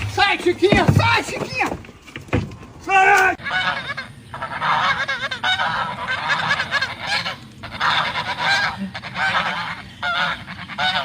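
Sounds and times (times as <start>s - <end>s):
goose honking: 3.4s - 11.0s.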